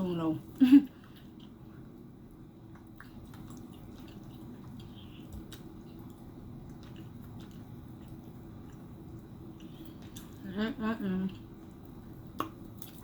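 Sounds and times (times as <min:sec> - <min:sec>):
wet chewing and mouth noises: 0:00.9 - 0:10.5, 0:11.3 - 0:13.0
small mouth clicks and smacks: 0:12.4 - 0:13.0.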